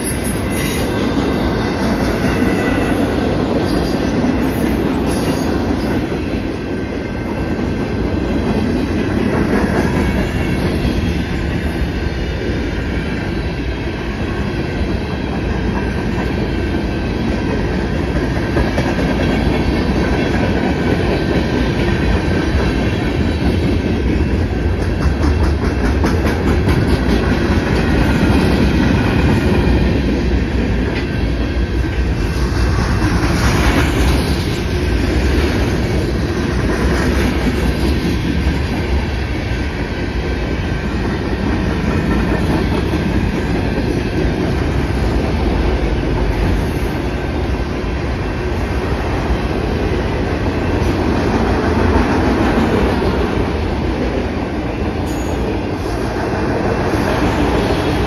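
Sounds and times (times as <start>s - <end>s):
freight train rolling past: 0.0s - 58.0s
steel wheels clattering over rail joints: 15.0s - 39.3s.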